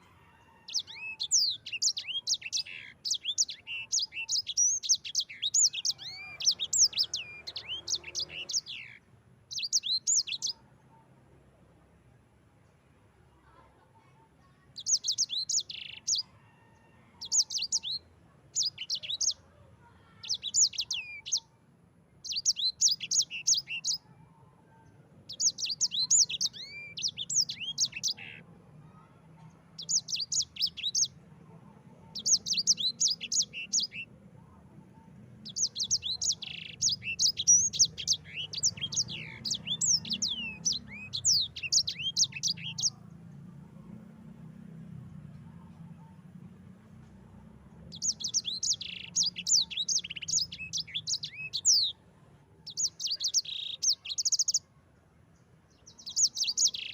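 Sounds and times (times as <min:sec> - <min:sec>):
canary singing: 0:00.0 - 0:10.7, 0:14.8 - 0:19.4, 0:20.0 - 0:21.5, 0:22.2 - 0:29.1, 0:29.7 - 0:43.5, 0:47.6 - 0:52.0, 0:52.6 - 0:54.7, 0:55.7 - 0:56.9.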